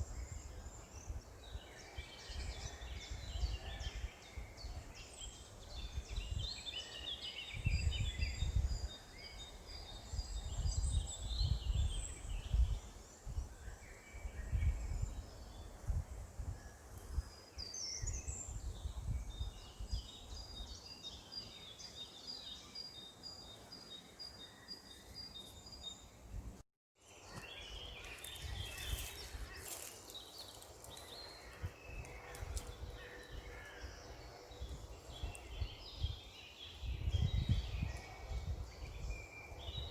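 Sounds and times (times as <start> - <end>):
birds singing: 0.0 - 15.9, 27.1 - 39.9
wind rumble on microphone: 0.0 - 20.8, 26.2 - 26.6, 27.4 - 39.9.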